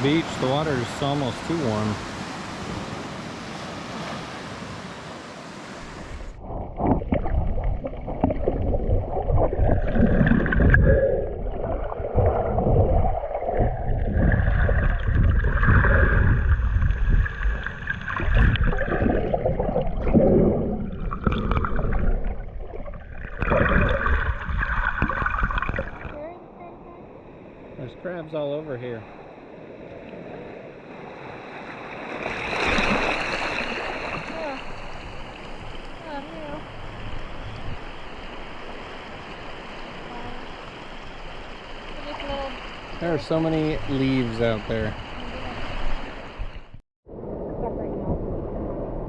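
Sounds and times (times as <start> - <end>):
ocean surf washing: 0.0 - 6.5, 23.7 - 48.9
seawater sloshing and gurgling: 6.0 - 26.2, 30.1 - 46.8.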